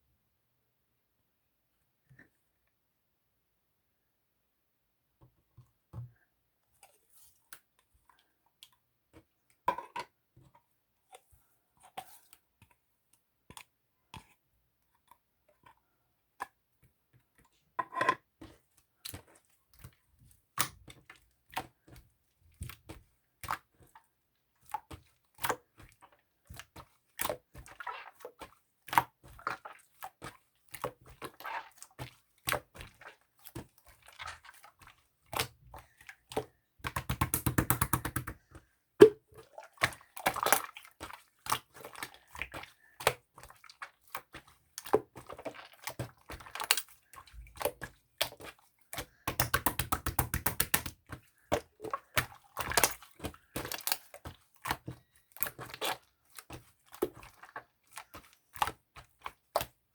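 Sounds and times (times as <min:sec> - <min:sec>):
small objects clicking and tapping: 0:36.9 - 0:38.4, 0:49.3 - 0:51.0.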